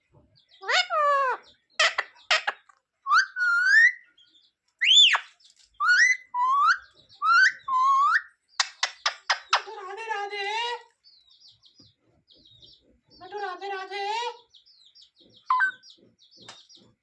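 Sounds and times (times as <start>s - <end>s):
parrot whistling: 1.8s - 4.0s, 4.8s - 9.6s
parrot clicky chirps: 7.2s - 9.7s, 15.5s - 15.8s.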